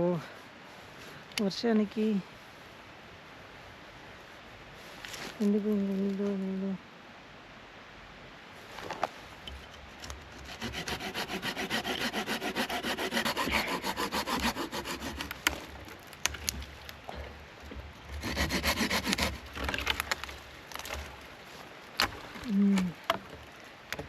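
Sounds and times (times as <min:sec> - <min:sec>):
hand saw cutting log: 0:10.0 - 0:15.7, 0:18.1 - 0:20.0.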